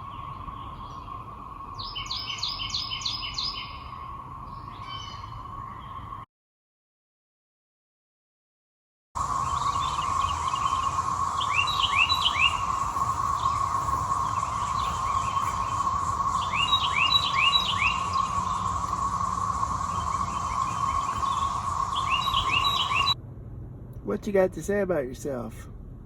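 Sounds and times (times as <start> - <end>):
bird chirping: 0.0 - 6.2, 9.2 - 23.2
cicadas droning: 0.0 - 6.2, 9.2 - 23.2.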